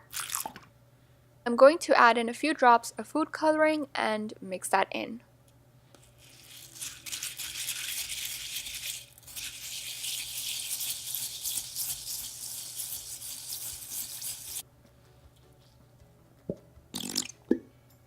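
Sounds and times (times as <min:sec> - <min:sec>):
beads rattling in slime: 0:06.2 - 0:14.6.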